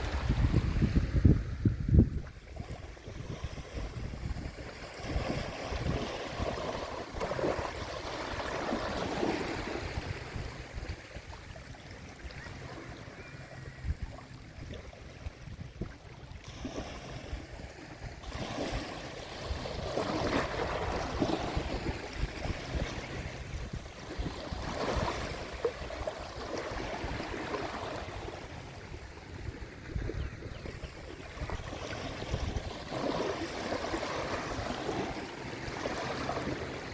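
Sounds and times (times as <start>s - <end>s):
sea waves washing onto shore: 2.5s - 29.9s.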